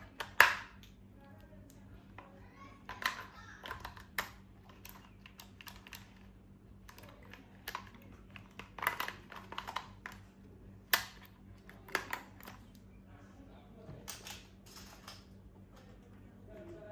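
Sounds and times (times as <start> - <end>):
faint low hum: 0.0 - 16.9
plastic toys and packaging handled: 1.7 - 12.7.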